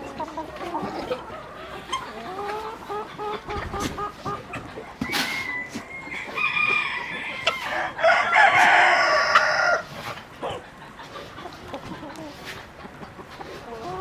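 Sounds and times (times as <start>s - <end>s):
hens clucking: 0.0s - 14.0s
rooster crowing: 5.0s - 9.9s.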